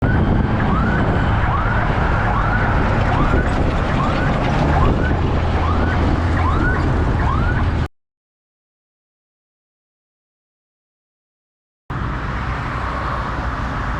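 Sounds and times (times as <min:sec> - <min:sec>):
heavy vehicle engine rumbling: 0:00.0 - 0:07.9, 0:11.9 - 0:13.9.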